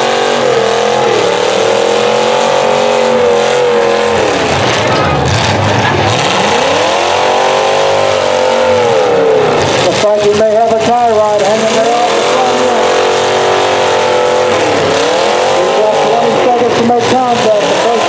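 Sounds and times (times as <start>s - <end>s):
car engines revving hard: 0.0s - 18.0s.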